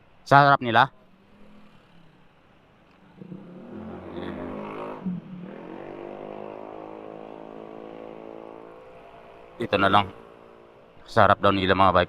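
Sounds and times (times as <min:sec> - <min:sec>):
motorcycle engine accelerating: 0:03.0 - 0:11.0.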